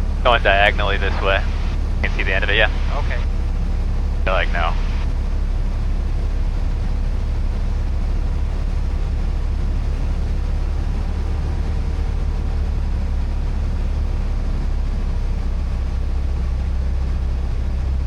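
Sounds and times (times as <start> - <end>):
faint steady tones: 0.0 - 18.0
propeller airplane engine drone: 0.0 - 18.0.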